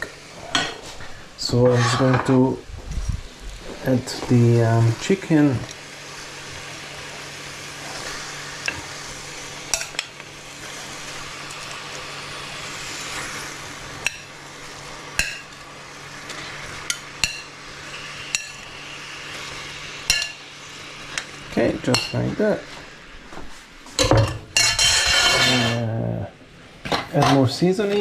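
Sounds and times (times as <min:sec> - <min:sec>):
chicken sizzling in a pot: 0:03.2 - 0:23.2, 0:24.0 - 0:26.2.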